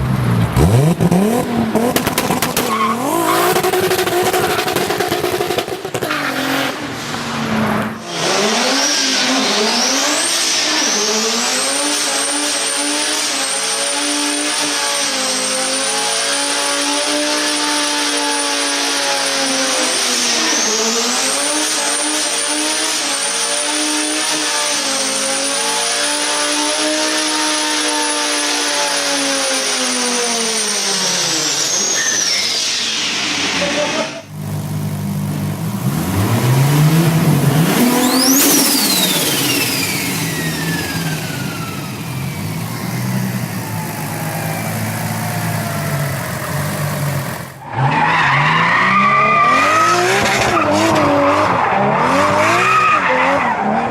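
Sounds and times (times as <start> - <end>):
turbocharged car engine revving: 0.0 - 53.9
engine whine: 24.4 - 48.4
high turbo whistle: 27.0 - 34.3, 37.8 - 51.0.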